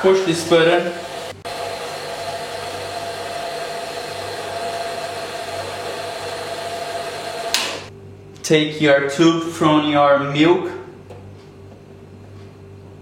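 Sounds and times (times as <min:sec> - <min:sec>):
milk frother hissing whir: 0:00.2 - 0:07.9.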